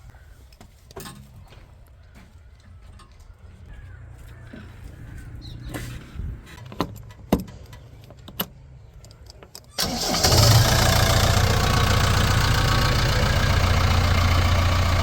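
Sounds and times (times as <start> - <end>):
diesel engine rumble: 9.8 - 15.0.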